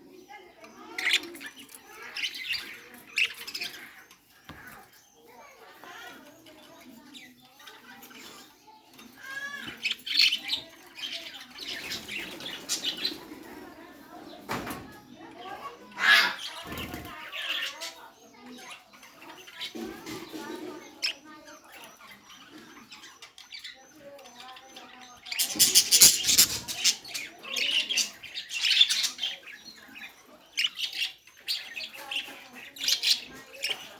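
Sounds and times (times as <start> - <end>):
large bird squawking: 25.3 - 28.1.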